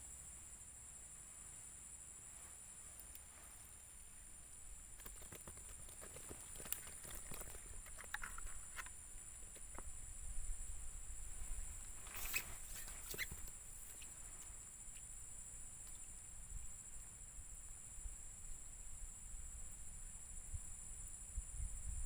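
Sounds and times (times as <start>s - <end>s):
insects chirring: 0.0s - 22.0s
clicks and rustles: 4.9s - 10.0s, 11.8s - 15.1s.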